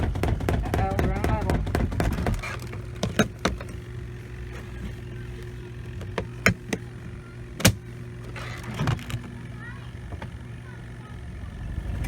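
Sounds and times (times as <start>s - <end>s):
sharp clicks and knocks: 0.0s - 9.4s
electric motor humming: 0.0s - 12.0s.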